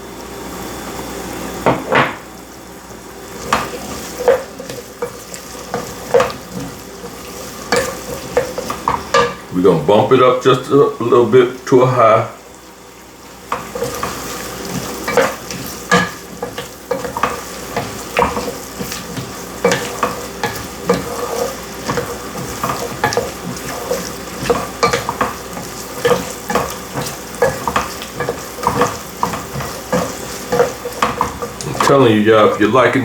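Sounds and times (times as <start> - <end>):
vegetables sizzling in oil: 0.0 - 32.7
utensil scraping and knocking pot: 3.4 - 9.5, 13.5 - 32.7.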